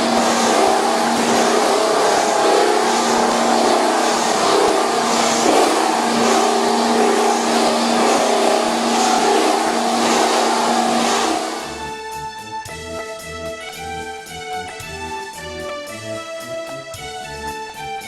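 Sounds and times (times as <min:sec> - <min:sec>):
machine motor hum: 0:00.0 - 0:11.8
wide hiss: 0:00.0 - 0:11.9.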